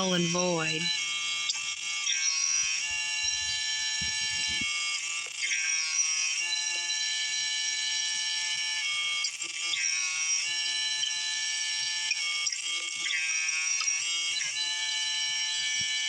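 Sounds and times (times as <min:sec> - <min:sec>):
chainsaw cutting wood: 0:01.0 - 0:06.6.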